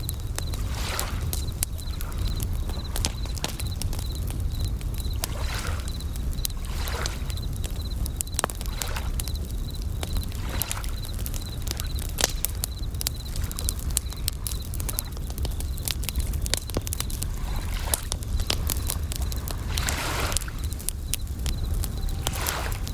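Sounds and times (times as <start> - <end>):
campfire crackling and popping: 0.0 - 22.9
crickets chirping trill: 0.0 - 22.9
small waves washing in: 0.6 - 1.3, 19.5 - 20.7.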